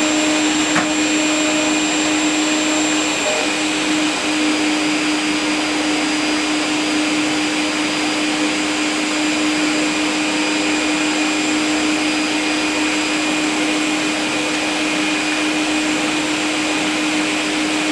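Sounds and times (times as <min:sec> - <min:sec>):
vacuum cleaner running: 0:00.0 - 0:17.9.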